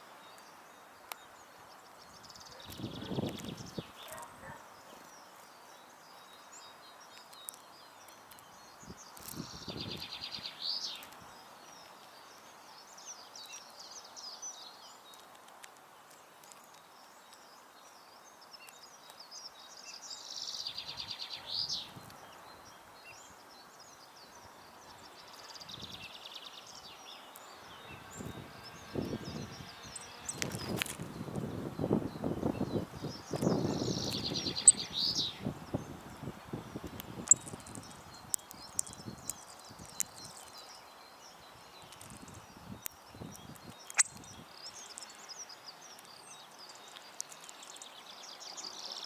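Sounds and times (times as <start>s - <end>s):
small birds chirping faintly: 0.0s - 49.0s
songbird trilling: 19.9s - 48.1s.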